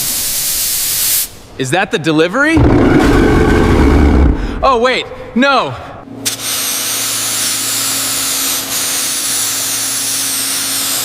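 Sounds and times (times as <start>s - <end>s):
loud steady hiss: 0.0s - 1.5s
low hum: 2.6s - 6.1s.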